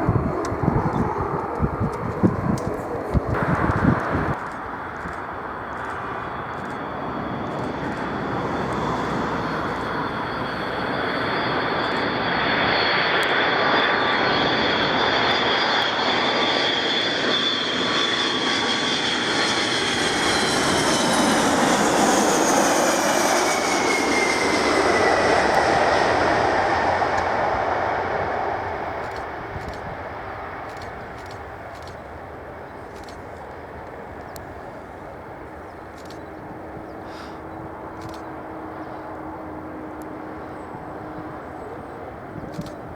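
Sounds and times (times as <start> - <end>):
high engine whine: 0.0 - 30.0
jet engines passing: 0.0 - 42.9.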